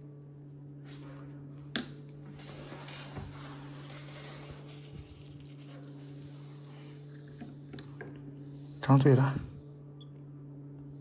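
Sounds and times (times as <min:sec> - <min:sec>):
low electrical hum: 0:00.0 - 0:11.0
small birds chirping: 0:04.8 - 0:07.4.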